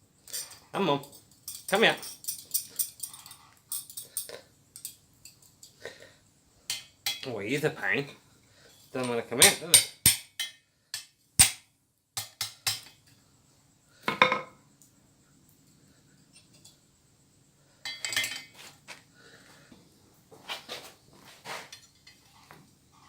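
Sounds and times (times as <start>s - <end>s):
metal clinks and taps: 0.3s - 5.8s.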